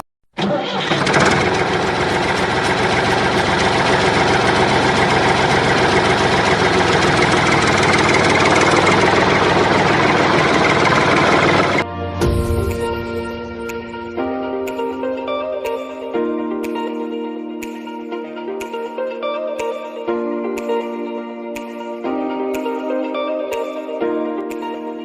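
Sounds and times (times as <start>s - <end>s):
rattling motor running: 0.4s - 11.8s.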